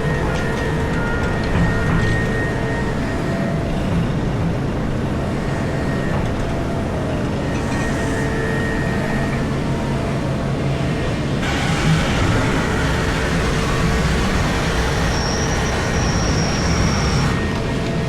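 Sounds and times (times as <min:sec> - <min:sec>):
excavator engine and hydraulics rumbling: 0:00.0 - 0:18.0
faint high whine: 0:07.7 - 0:18.0.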